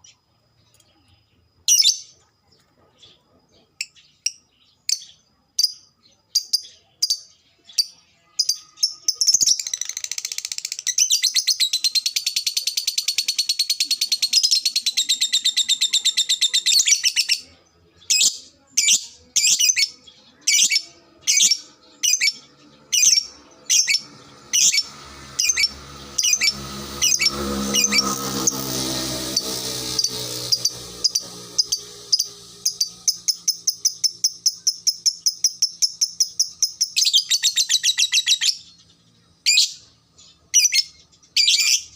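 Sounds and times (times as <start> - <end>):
steady low hum: 16.6 - 37.1
lovebird sharp chirps: 29.2 - 38.7.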